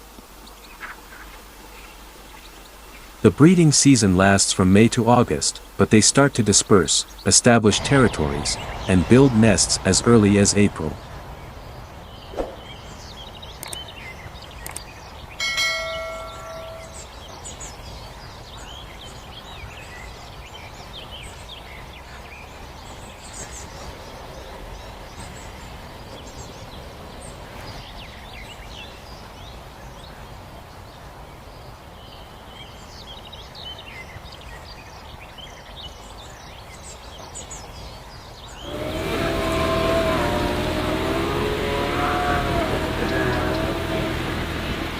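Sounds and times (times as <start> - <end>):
small songbirds chirping: 0.0 - 44.9
low outdoor rumble: 7.5 - 13.6, 38.6 - 44.9
wavering held tones: 15.4 - 17.1.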